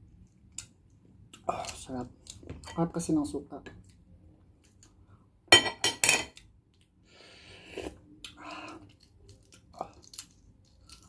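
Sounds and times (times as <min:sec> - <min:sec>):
person chewing: 0:07.6 - 0:11.0.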